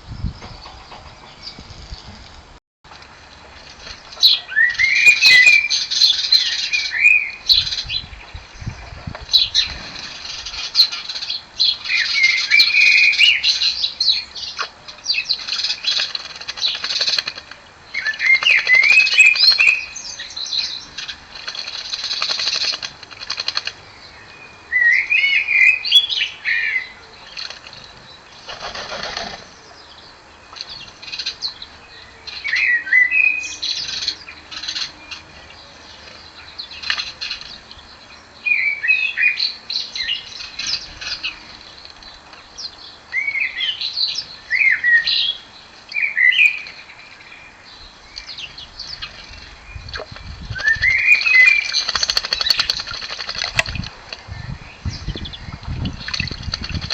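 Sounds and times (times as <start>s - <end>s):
birds splashing in water: 2.9s - 7.8s, 8.9s - 24.1s, 27.1s - 29.8s, 33.6s - 37.8s, 48.2s - 54.3s, 55.4s - 56.9s
blackbird singing: 4.2s - 21.3s, 23.8s - 28.5s, 29.1s - 56.8s
rush of wings: 9.2s - 11.3s, 21.0s - 23.8s, 28.4s - 29.5s, 50.4s - 53.9s.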